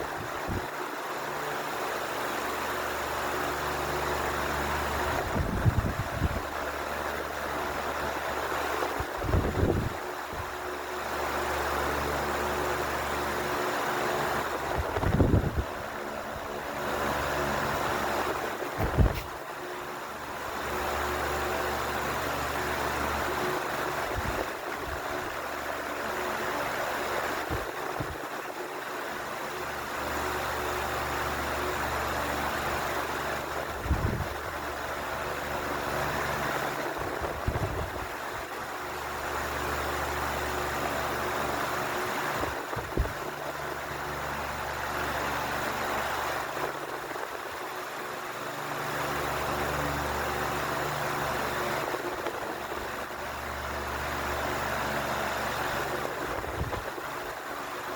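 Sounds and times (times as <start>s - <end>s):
fan blades rushing air: 0.0s - 57.9s
fan motor hum: 0.0s - 57.9s.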